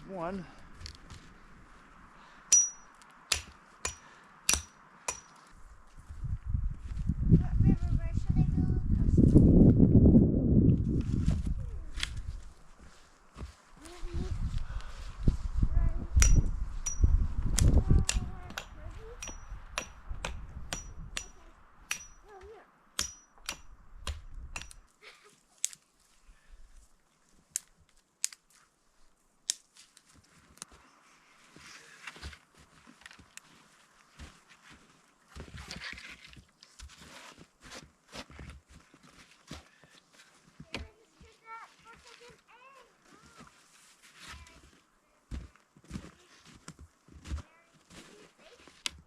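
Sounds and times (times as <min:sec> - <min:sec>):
metal tool striking wood: 0:02.5 - 0:05.5, 0:16.2 - 0:22.3, 0:23.0 - 0:24.8
blade chopping into wood: 0:03.3 - 0:05.3, 0:23.0 - 0:24.8
rustling handling noise: 0:29.7 - 0:49.0.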